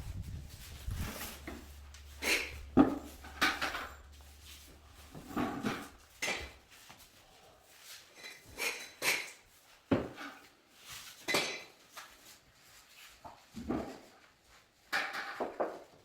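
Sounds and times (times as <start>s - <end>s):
low hum: 0.0s - 6.3s
hard objects clinking and scraping: 0.1s - 6.6s.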